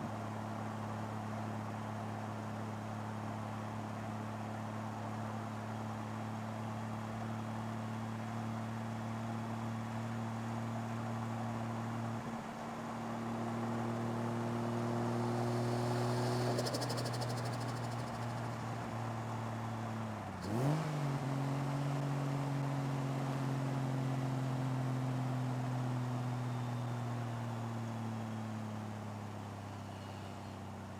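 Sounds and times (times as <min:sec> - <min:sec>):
car engine idling: 0:14.8 - 0:20.0
fast faint high ticking: 0:15.2 - 0:18.9.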